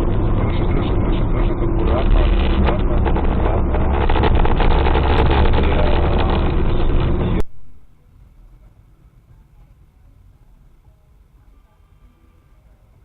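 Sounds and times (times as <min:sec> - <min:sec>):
car rattles: 0:00.0 - 0:07.4
car road and engine rumble: 0:00.0 - 0:13.0.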